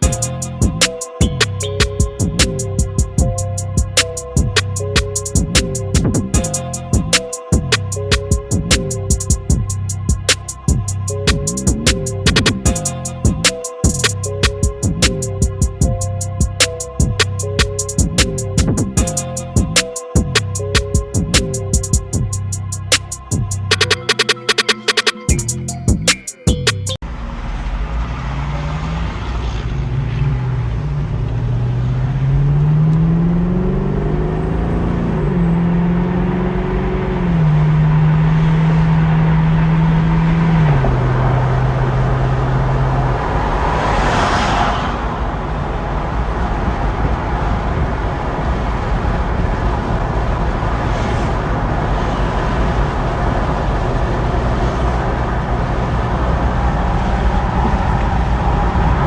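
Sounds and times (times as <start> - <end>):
car engine running: 0.0 - 24.0
road and wind noise: 0.0 - 24.4, 26.8 - 59.0.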